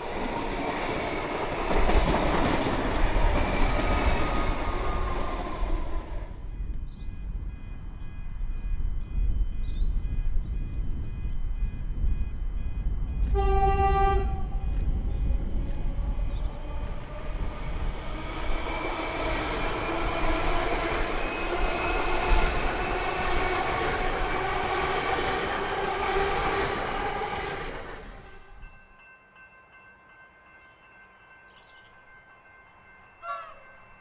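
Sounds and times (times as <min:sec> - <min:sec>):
rushing wheel noise: 0:00.0 - 0:06.4, 0:14.8 - 0:28.6
train passing with whine: 0:00.0 - 0:34.0
train horn blast: 0:13.3 - 0:14.8, 0:28.2 - 0:28.7.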